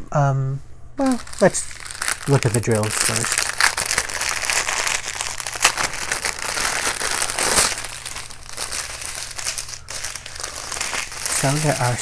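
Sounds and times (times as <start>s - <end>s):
plastic bags crinkling: 1.0s - 12.0s.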